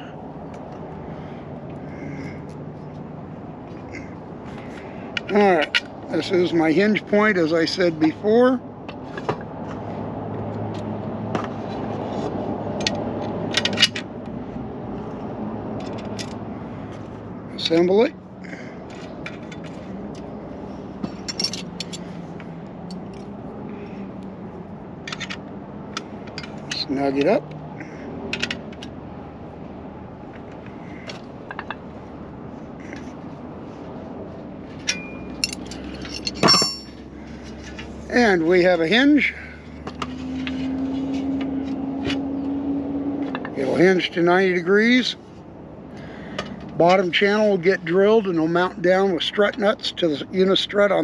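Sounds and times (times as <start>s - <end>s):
metal clinks and scrapes: 21.0s - 23.2s, 34.7s - 38.0s
wrench clicking and scraping: 21.1s - 22.2s, 25.0s - 27.3s, 34.8s - 37.0s.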